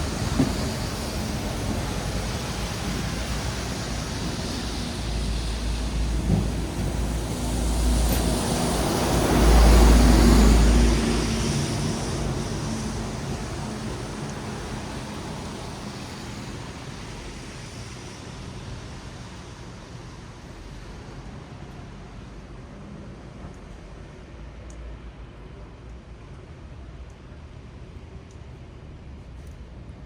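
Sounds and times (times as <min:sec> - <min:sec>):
tyres hissing on wet asphalt: 0:00.0 - 0:23.0.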